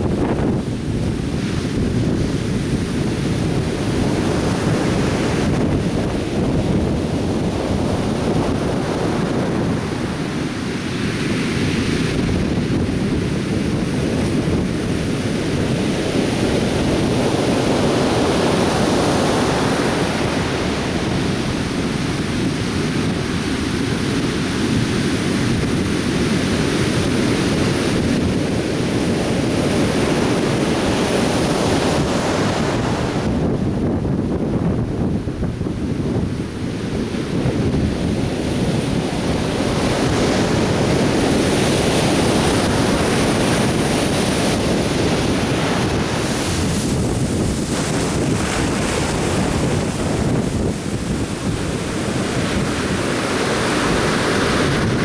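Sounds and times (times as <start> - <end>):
surf breaking on a beach: 0.0 - 55.0
wind buffeting the microphone: 0.0 - 55.0.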